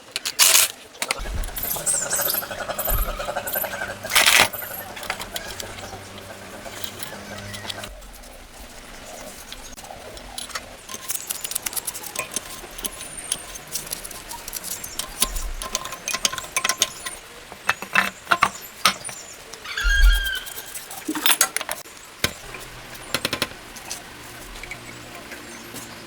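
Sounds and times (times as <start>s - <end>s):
metal parts and tools clinking: 0.0s - 7.9s, 10.0s - 23.5s
low hum: 1.2s - 10.5s.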